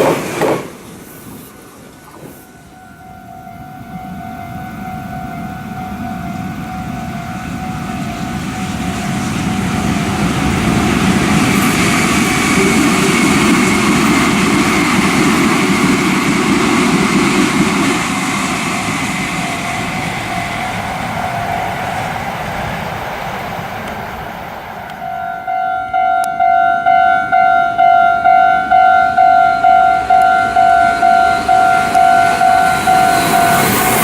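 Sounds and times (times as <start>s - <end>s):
electric train passing: 0.0s - 34.0s
faint high whine: 1.0s - 11.2s.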